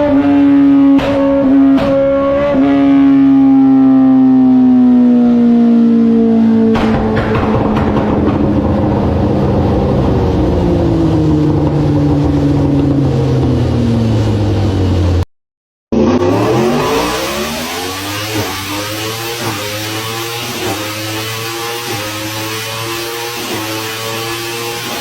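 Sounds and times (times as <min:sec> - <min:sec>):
superbike engine and exhaust: 0:00.0 - 0:15.3, 0:15.9 - 0:25.0
superbike engine sweeping up: 0:15.9 - 0:25.0.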